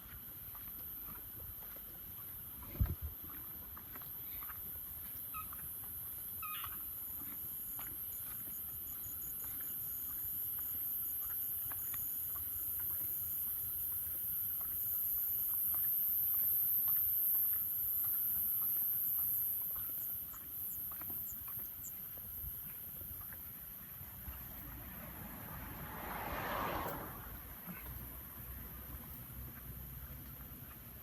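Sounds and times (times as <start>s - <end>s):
night insects trilling: 0.0s - 31.0s
short frog calls: 4.0s - 22.6s.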